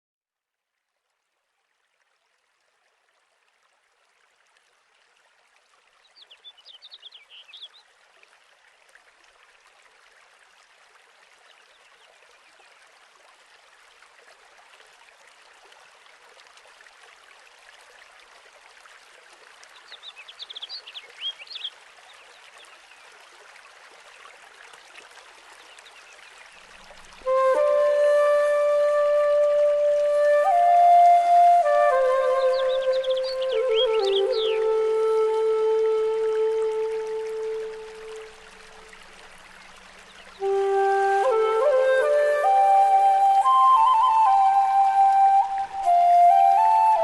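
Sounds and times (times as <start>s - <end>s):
stream rushing: 3.5s - 47.0s
bird chirping: 6.2s - 7.8s, 19.8s - 21.7s, 32.2s - 34.8s.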